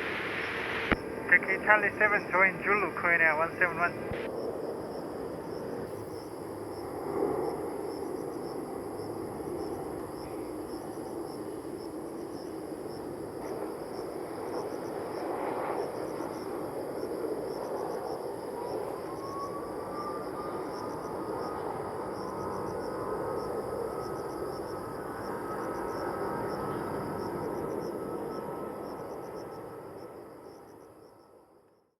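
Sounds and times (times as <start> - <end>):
jet engine whine rising: 0.0 - 4.3
distant jet engines rumbling: 0.0 - 31.0.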